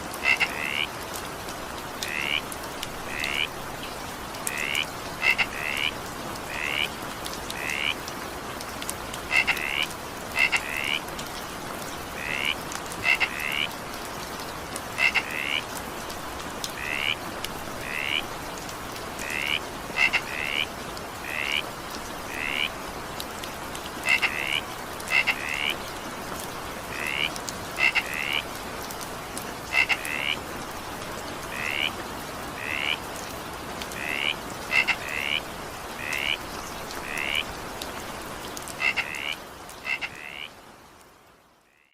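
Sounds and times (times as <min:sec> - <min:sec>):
steady rain: 0:00.0 - 0:41.9
frogs croaking: 0:00.1 - 0:01.0, 0:02.0 - 0:08.0, 0:09.2 - 0:11.1, 0:12.0 - 0:13.8, 0:14.8 - 0:15.8, 0:16.6 - 0:18.4, 0:19.1 - 0:22.9, 0:23.9 - 0:26.1, 0:26.7 - 0:28.6, 0:29.6 - 0:30.5, 0:31.4 - 0:37.8, 0:38.6 - 0:40.6, 0:41.6 - 0:41.9.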